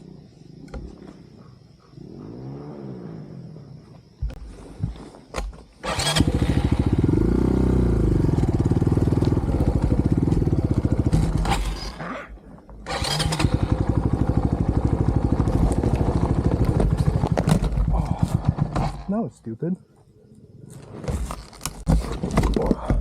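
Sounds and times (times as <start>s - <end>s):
dirt bike engine revving: 5.8s - 12.0s, 12.8s - 17.3s.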